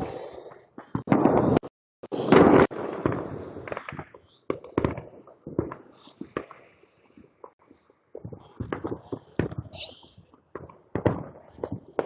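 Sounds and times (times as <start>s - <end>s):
firework blast: 0.0s - 6.5s
fireworks popping and crackling: 0.0s - 12.0s
firework hiss: 2.1s - 2.7s.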